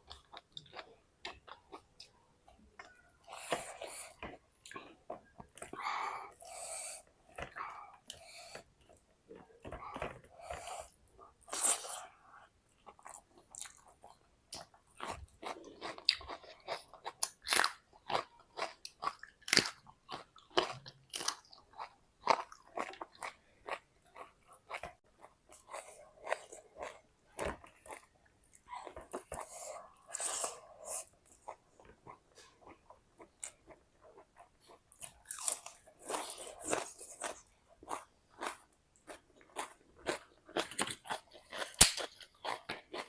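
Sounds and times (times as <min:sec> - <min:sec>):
person crunching and chewing: 0:12.8 - 0:33.6, 0:34.2 - 0:43.0.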